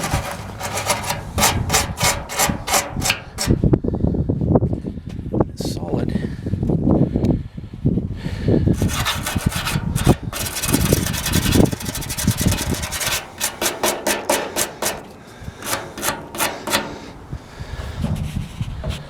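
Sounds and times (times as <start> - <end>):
hand scrubbing steel door panel: 0.0 - 3.7, 8.8 - 19.0.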